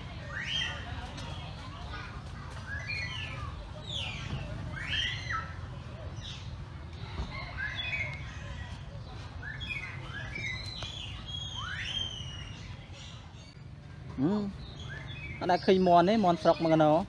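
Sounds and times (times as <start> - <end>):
birds chirping and calling: 0.0 - 17.0.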